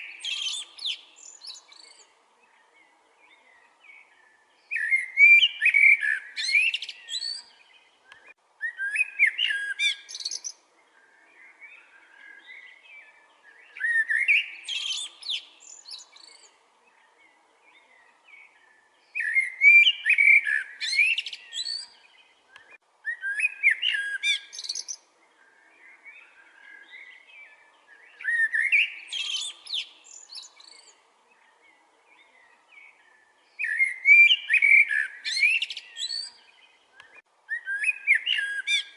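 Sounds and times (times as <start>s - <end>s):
songbird whistled phrases: 0.0s - 2.0s, 4.7s - 10.6s, 13.6s - 16.4s, 19.2s - 25.0s, 27.9s - 30.9s, 33.6s - 38.9s
soft bird chirps: 0.0s - 38.9s.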